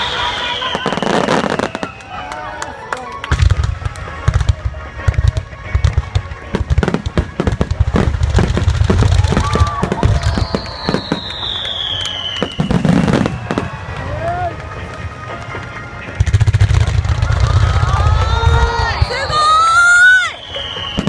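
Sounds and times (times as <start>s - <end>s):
falling firework whistle: 0.0s - 2.4s, 6.8s - 14.3s, 16.6s - 21.0s
fireworks bangs and booms: 3.2s - 19.4s.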